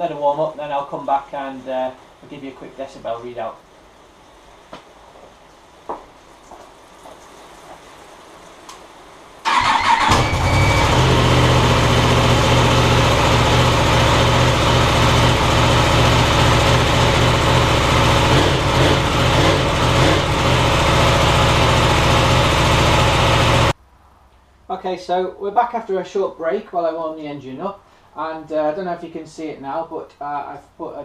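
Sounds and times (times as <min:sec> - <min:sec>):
motorcycle engine starting and idling: 0:09.4 - 0:23.8.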